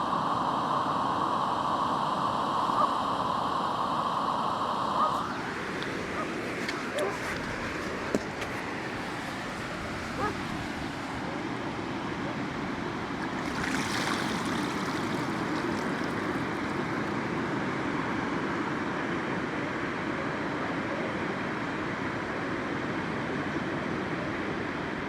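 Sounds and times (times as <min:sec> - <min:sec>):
surf washing onto beach: 0:04.3 - 0:18.3
wave breaking: 0:04.9 - 0:17.9.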